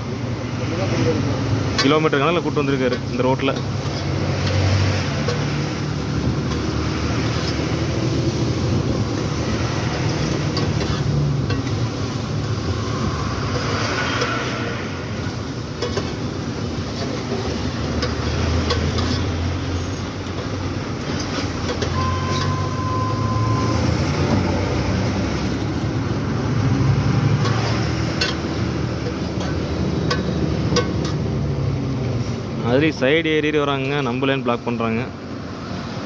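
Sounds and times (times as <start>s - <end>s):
road noise: 0.0s - 36.0s
short steady tone: 22.0s - 23.8s.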